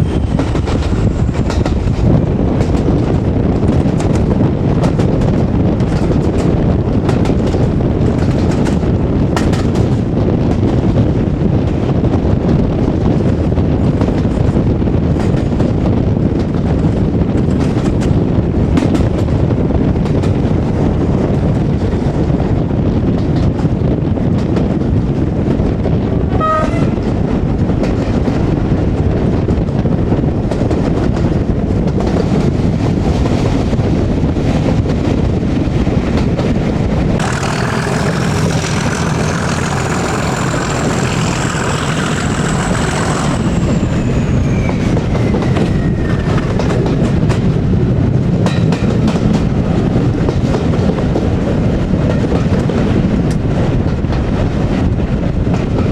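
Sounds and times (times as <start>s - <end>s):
diesel train running: 0.0s - 55.9s
clicks from rail joints: 3.6s - 10.7s, 37.2s - 43.8s
train horn toot: 26.3s - 27.2s
high squeal: 37.2s - 46.7s.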